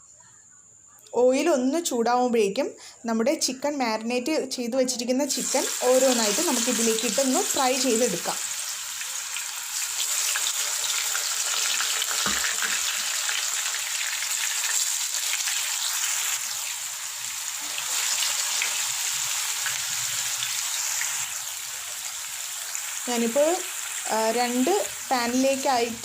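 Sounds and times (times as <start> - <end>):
chicken sizzling in frying pan: 5.3 - 26.0.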